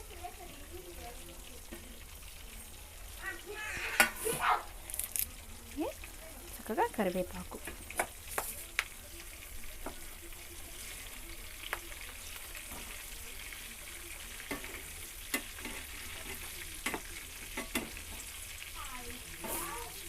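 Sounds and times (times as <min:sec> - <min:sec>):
chicken sizzling in hot oil: 0:00.0 - 0:20.0
spatula scraping a pan: 0:03.7 - 0:04.4, 0:12.6 - 0:13.1, 0:14.3 - 0:18.7, 0:19.3 - 0:20.0.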